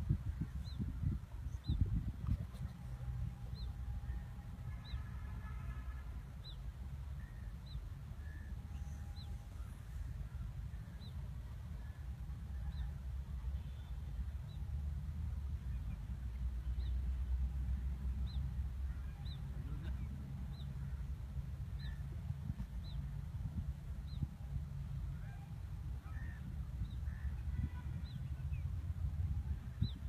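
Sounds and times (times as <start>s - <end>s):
wind rumble on microphone: 0.0s - 5.6s, 14.3s - 30.0s.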